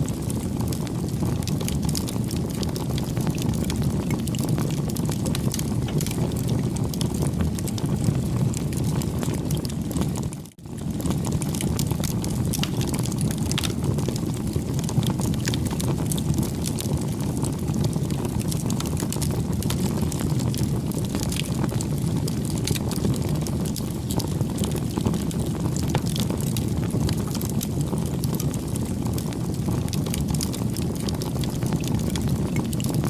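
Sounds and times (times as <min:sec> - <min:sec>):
campfire flames crackling: 0:00.0 - 0:33.0.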